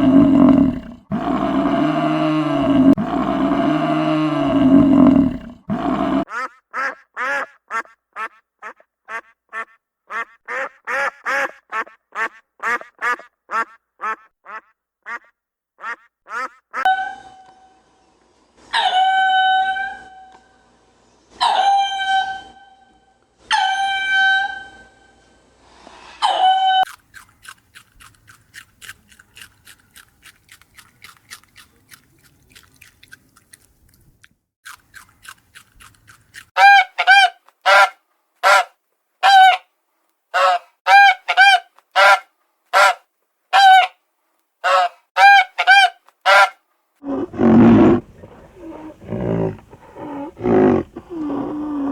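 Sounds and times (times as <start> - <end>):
ticking bird calls: 6.3 - 16.8
long bird calls: 47.1 - 51.9.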